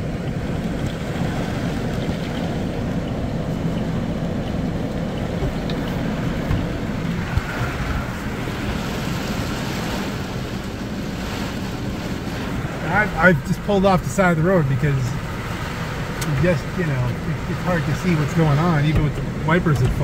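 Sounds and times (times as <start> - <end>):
heavy rain drumming on car roof: 0.0 - 20.0.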